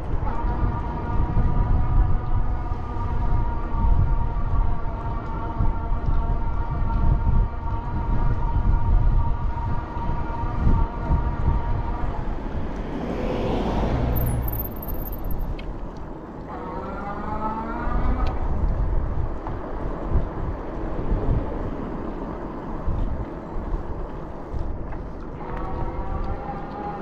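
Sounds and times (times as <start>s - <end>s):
road rumble: 0.0s - 27.0s
vehicle passing: 11.4s - 15.6s.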